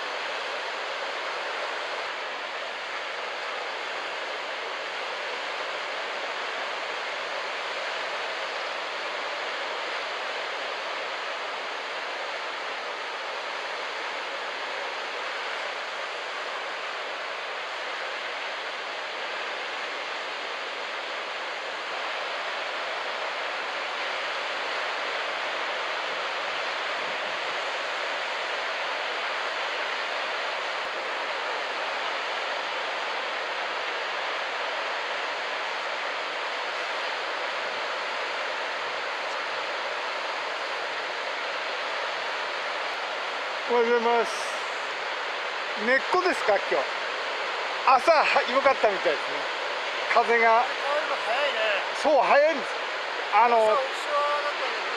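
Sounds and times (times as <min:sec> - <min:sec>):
surf rushing: 0:20.0 - 0:54.9.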